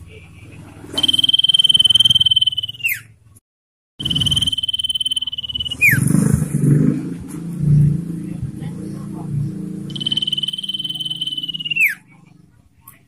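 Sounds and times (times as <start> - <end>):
bird trilling: 0.9 - 3.2, 4.0 - 6.3, 9.9 - 12.2.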